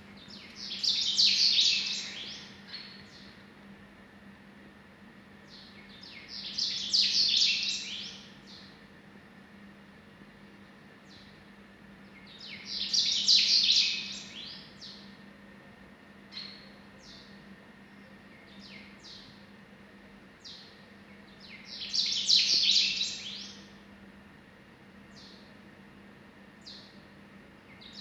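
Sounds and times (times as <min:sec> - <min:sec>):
small bird singing: 0:00.1 - 0:03.4, 0:05.4 - 0:08.8, 0:12.0 - 0:15.1, 0:16.3 - 0:19.4, 0:20.4 - 0:23.8, 0:25.1 - 0:25.5, 0:26.6 - 0:27.0, 0:27.6 - 0:28.0.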